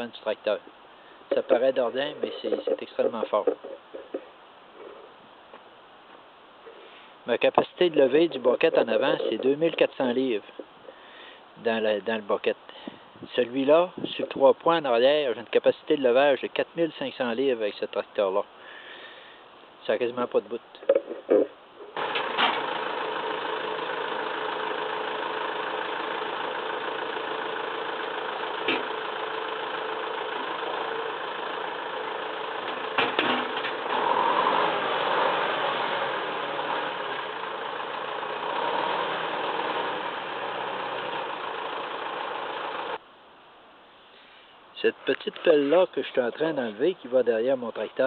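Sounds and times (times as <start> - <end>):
tractor diesel engine idling: 22.0 - 43.0.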